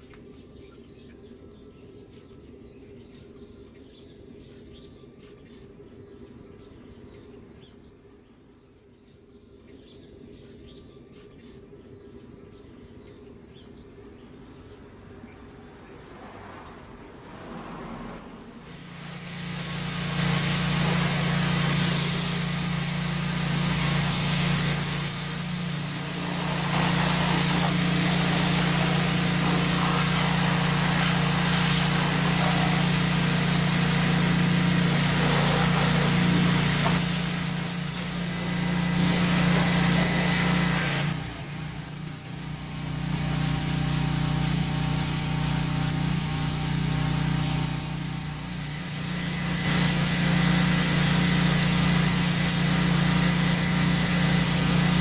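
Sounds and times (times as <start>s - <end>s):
small birds chirping: 0.0s - 17.5s, 19.6s - 49.8s
motor-driven machine humming: 18.8s - 55.0s.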